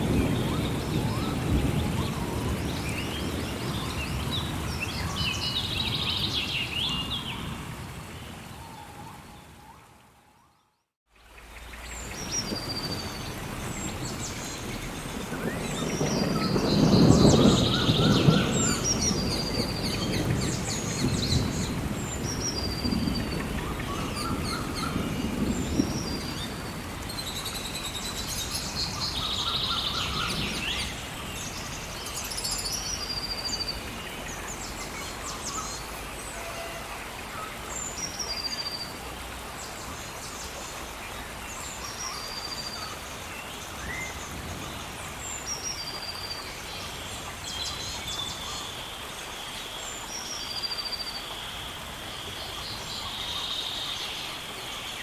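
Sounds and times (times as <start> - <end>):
thunder rumble: 0.0 - 8.5, 12.0 - 36.4
steady rain: 0.0 - 55.0
birds calling: 11.4 - 39.0.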